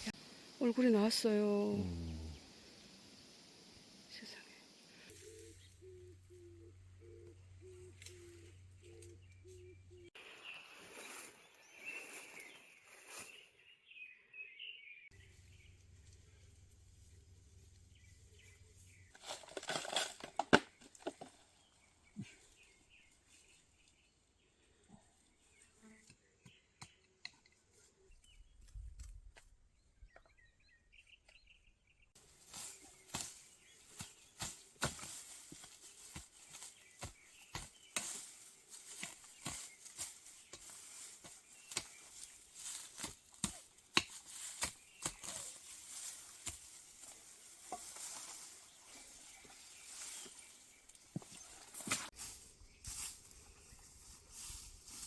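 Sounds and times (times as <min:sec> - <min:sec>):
faint bird chirps: 0:00.0 - 0:19.2
scraping and rustling in soil: 0:07.9 - 0:13.5, 0:15.2 - 0:24.1, 0:32.2 - 0:55.0.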